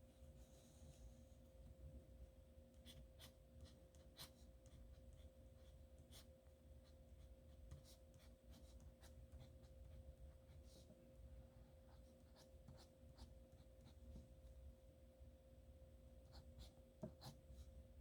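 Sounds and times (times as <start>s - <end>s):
low electrical hum: 0.0s - 18.0s
pen scratching on paper: 2.8s - 4.9s, 7.2s - 10.0s.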